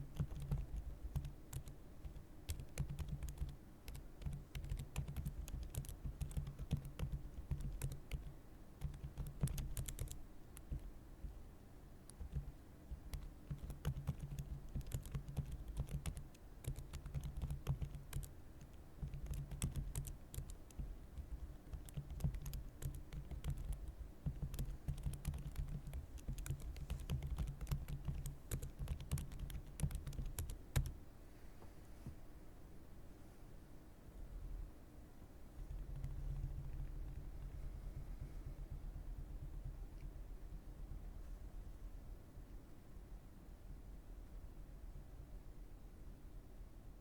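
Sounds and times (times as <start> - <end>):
typing on computer keyboard: 0.0 - 10.9, 12.1 - 31.0, 35.7 - 37.4.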